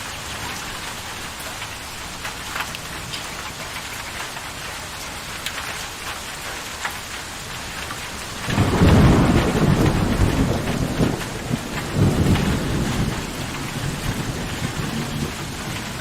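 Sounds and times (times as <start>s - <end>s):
steady rain falling: 0.0s - 16.0s
rolling rumble of thunder: 8.4s - 16.0s.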